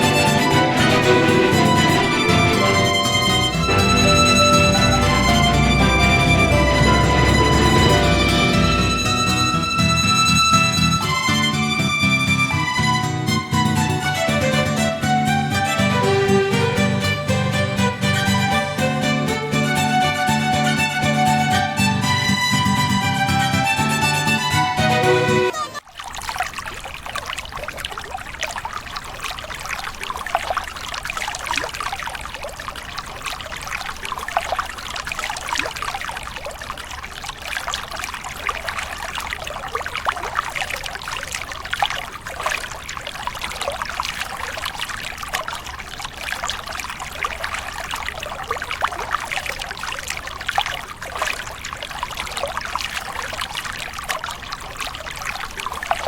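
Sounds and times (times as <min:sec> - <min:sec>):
water trickling and splashing: 0:24.5 - 0:56.0.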